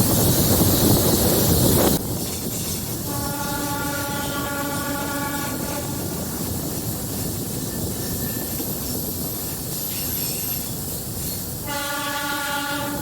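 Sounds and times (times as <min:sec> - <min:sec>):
train rumbling on rails: 0:00.0 - 0:13.0
train horn blast: 0:03.0 - 0:06.1, 0:11.6 - 0:13.0.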